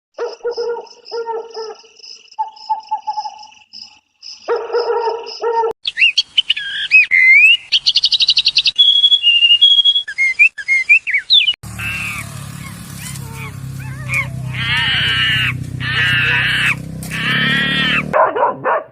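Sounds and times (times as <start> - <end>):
songbird singing with trills: 0.2 - 4.4, 5.8 - 13.2
low animal call: 11.7 - 18.2.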